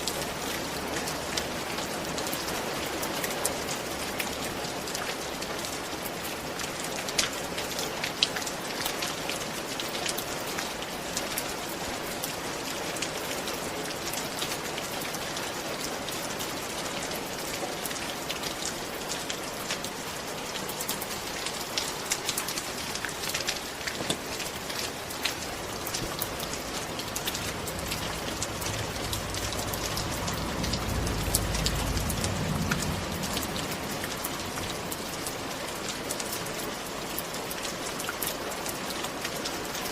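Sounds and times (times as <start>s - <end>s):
raindrops ticking close: 0.0s - 39.9s
steady rain: 0.0s - 39.9s
low rumble: 25.8s - 35.4s.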